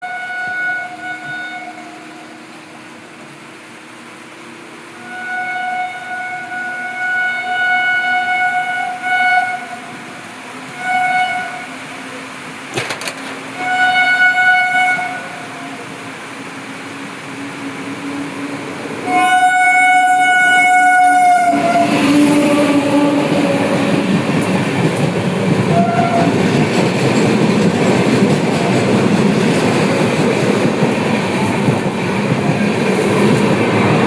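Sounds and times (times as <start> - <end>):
train horn blasts: 0.0 - 2.5, 4.9 - 12.2, 13.5 - 15.9, 17.5 - 24.5, 25.7 - 26.5.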